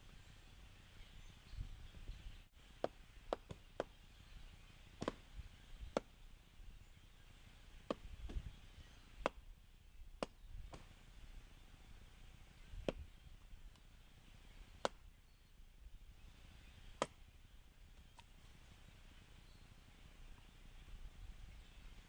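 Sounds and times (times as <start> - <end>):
axe chopping logs: 2.8 - 3.9, 4.9 - 5.3, 5.9 - 6.2, 7.8 - 8.5, 9.2 - 9.4, 10.2 - 11.0, 12.8 - 13.1, 14.8 - 15.0, 17.0 - 17.2.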